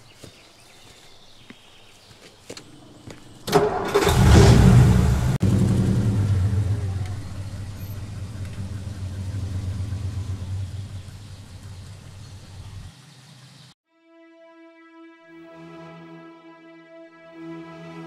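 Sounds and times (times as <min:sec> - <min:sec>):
car engine starting and running: 0:02.6 - 0:13.7.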